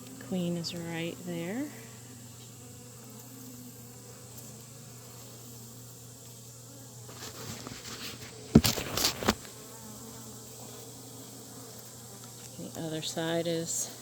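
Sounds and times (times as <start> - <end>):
bees humming: 0.0 - 14.0
rubbing and scraping handling noise: 7.0 - 9.5.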